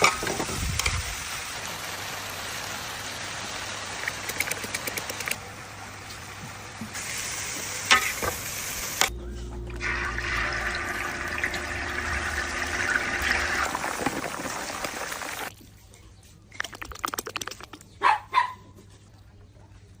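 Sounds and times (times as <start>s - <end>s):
food sizzling in a pan: 0.0s - 4.3s, 5.6s - 9.1s
quick clicks: 4.0s - 5.4s.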